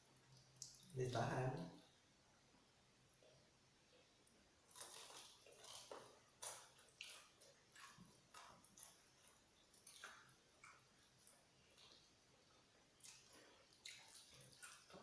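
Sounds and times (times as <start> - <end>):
crunching fried chicken: 4.6 - 12.1, 13.0 - 15.0.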